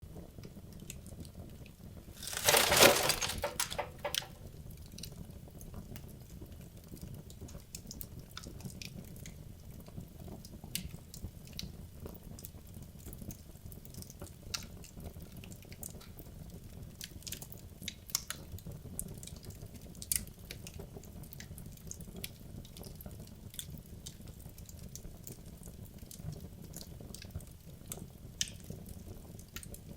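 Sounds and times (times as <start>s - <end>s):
wood fire crackling and popping: 2.2s - 4.4s.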